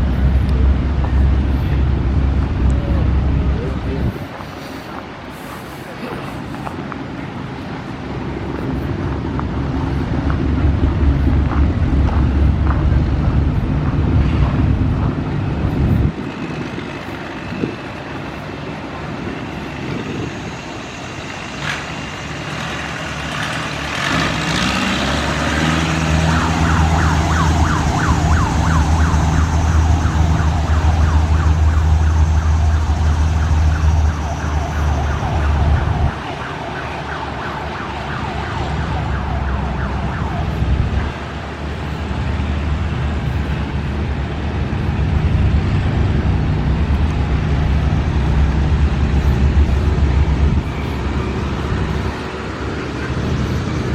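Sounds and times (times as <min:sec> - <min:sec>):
vehicle engines running: 0:00.0 - 0:53.9
engine revving: 0:21.6 - 0:31.4.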